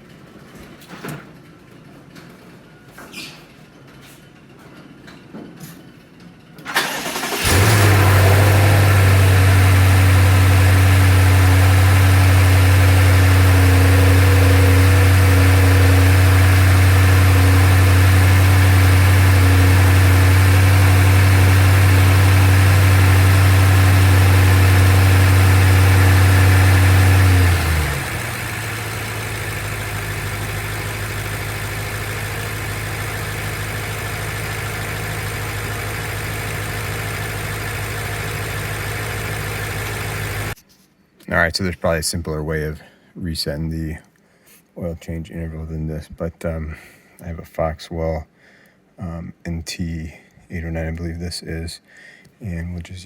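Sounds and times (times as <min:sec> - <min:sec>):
car engine starting and idling: 0:06.6 - 0:40.6.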